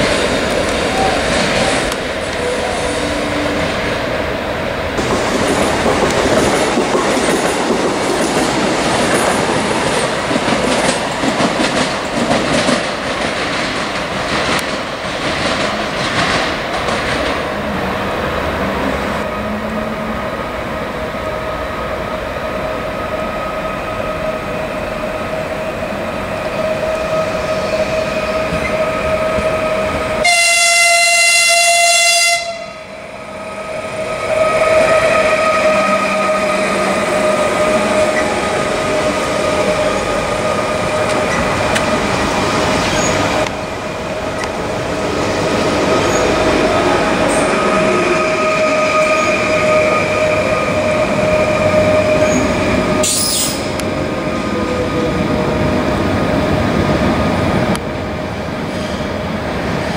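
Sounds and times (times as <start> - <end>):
electric train whine: 0.0 - 59.9
train horn: 2.4 - 3.9, 19.2 - 20.4, 26.6 - 41.1, 46.9 - 53.8
train wheels clattering over rail joints: 5.0 - 17.5.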